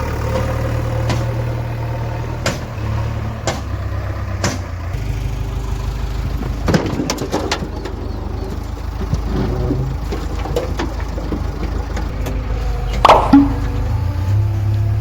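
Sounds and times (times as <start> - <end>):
diesel engine running: 0.0 - 15.0
metallic knocks and clanks: 6.4 - 14.1.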